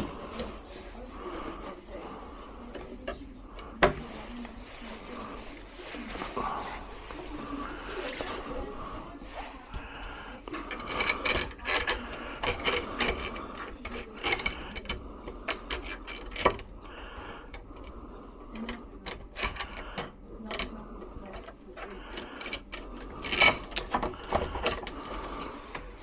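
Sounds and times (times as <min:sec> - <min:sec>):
metal clicking and rattling: 0:10.4 - 0:26.0.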